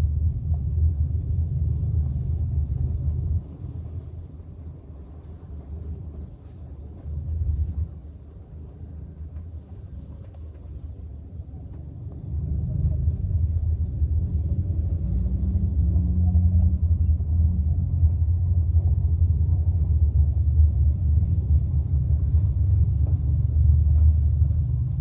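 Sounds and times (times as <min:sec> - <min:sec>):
low rumble: 0:00.0 - 0:25.0.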